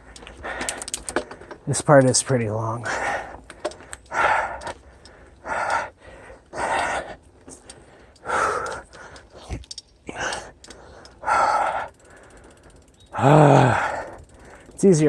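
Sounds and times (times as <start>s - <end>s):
person breathing hard: 0.0s - 1.6s, 2.8s - 14.8s
person groaning: 13.2s - 14.1s.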